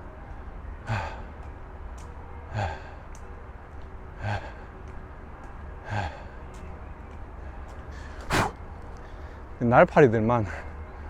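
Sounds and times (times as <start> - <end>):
man breathing hard: 0.9 - 1.4, 2.5 - 3.1, 4.2 - 4.8, 5.8 - 6.5, 7.9 - 9.6.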